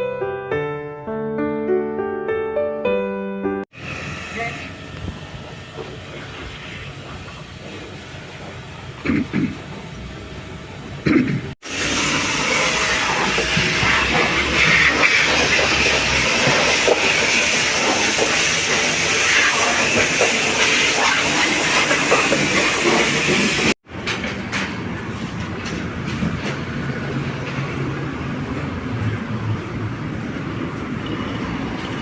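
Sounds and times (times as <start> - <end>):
car road and wind noise: 23.9 - 32.0.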